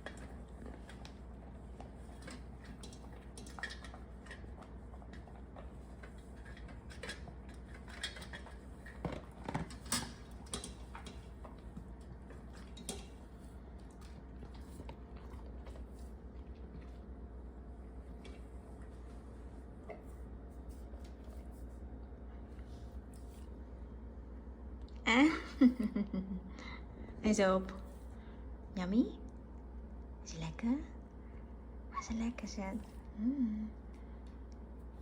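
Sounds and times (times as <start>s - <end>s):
dog eating: 0.0s - 20.1s.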